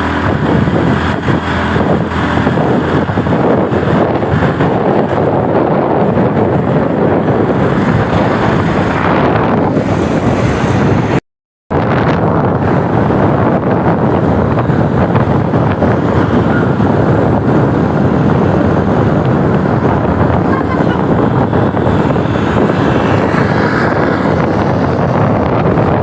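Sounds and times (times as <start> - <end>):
motorcycle engine and road drone: 0.0 - 26.0
wind buffeting microphone: 0.0 - 26.0.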